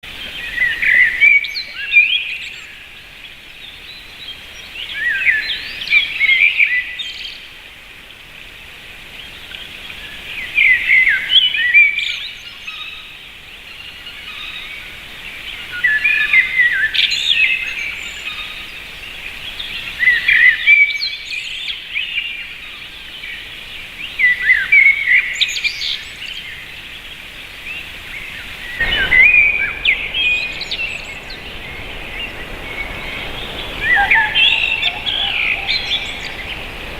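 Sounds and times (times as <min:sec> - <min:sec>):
bird chirping and whistling: 0:33.8 - 0:36.6.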